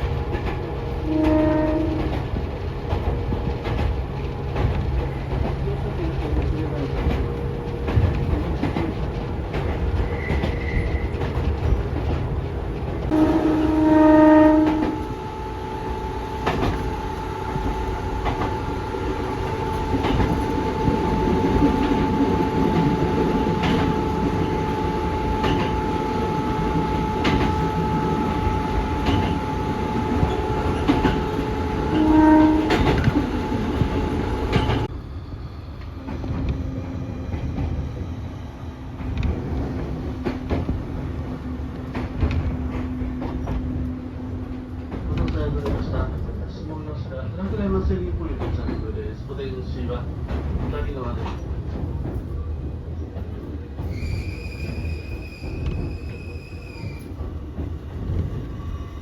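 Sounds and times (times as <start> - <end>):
train rumbling along tracks: 0.0 - 59.0
train horn blast: 0.9 - 2.4, 13.1 - 34.9.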